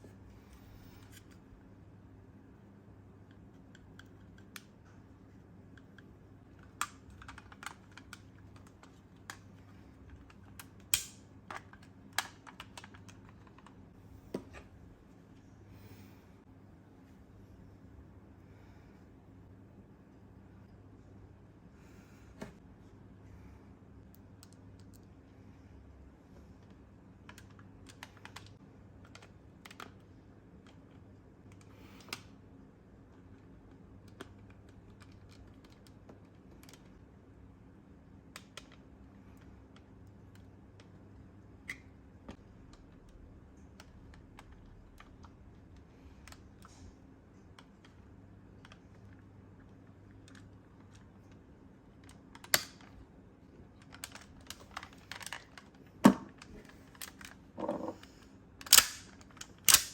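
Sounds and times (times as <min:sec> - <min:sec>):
plastic toy parts clicking: 0:58.6 - 0:59.9.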